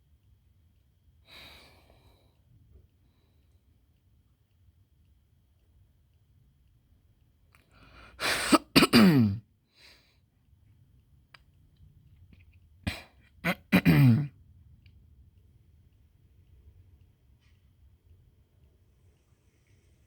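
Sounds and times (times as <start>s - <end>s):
person coughing: 8.2s - 9.4s, 12.9s - 14.4s.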